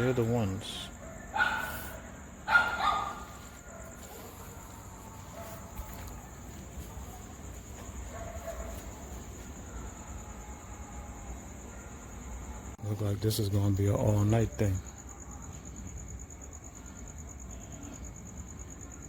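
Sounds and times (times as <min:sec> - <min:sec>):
insects chirring: 0:00.0 - 0:19.0
dog barking: 0:01.0 - 0:10.0.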